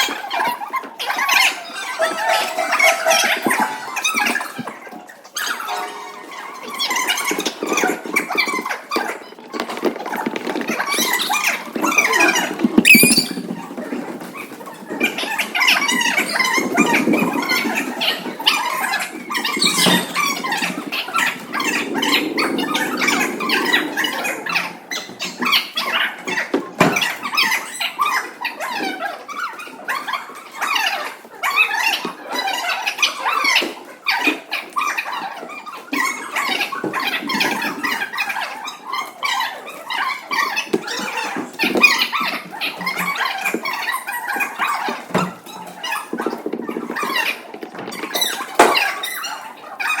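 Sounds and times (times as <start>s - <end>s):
children chattering and squealing: 12.9s - 13.5s.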